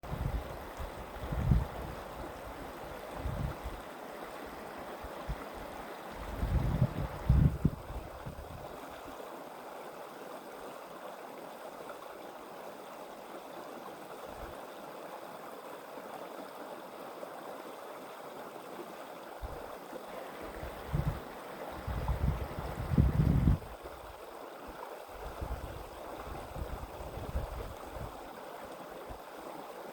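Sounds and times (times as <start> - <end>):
wind buffeting microphone: 0.0 - 2.6, 3.2 - 3.8, 6.2 - 8.7, 20.4 - 24.0, 25.2 - 28.2
creek water flowing over rocks: 0.0 - 29.9.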